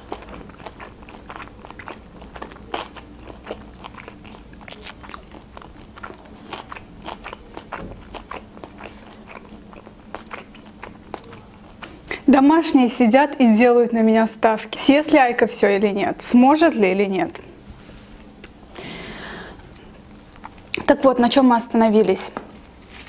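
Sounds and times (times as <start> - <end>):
woman chewing crunchy food: 0.0 - 12.3, 20.1 - 20.9.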